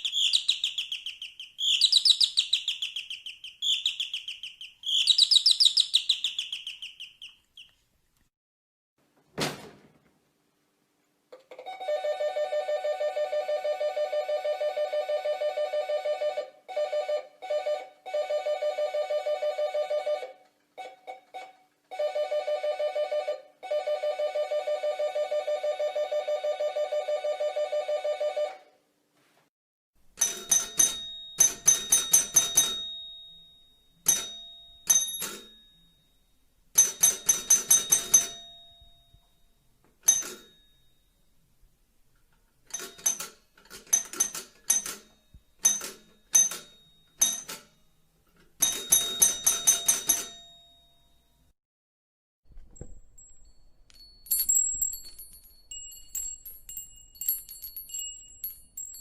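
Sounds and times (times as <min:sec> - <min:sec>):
high-pitched bell ringing: 0:53.2 - 0:59.0.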